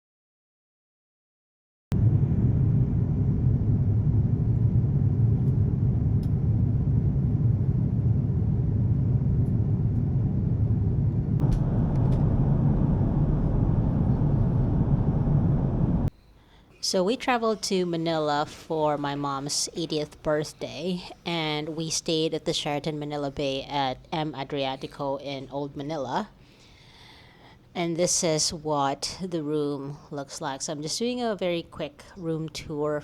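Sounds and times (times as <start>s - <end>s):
loud low rumble: 1.9s - 16.1s.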